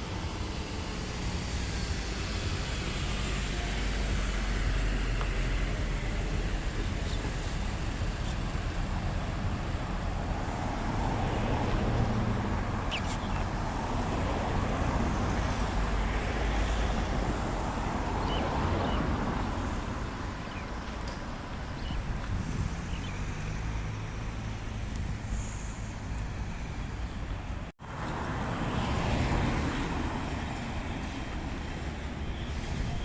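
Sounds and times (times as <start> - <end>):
city traffic noise: 0.0 - 33.0.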